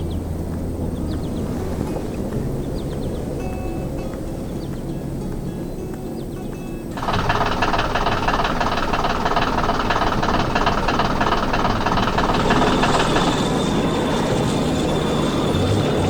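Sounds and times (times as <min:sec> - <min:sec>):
low engine-like rumble: 0:00.0 - 0:16.0
fast even machine rattle: 0:07.0 - 0:14.1.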